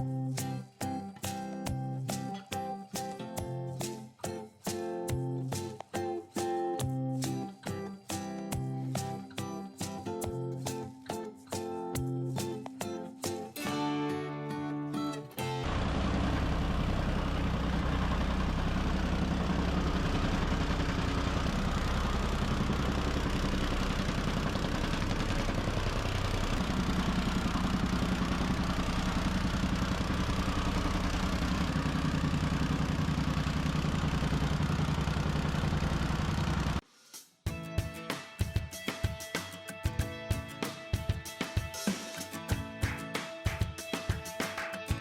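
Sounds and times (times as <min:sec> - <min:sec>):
soil compactor running: 0:15.4 - 0:36.8.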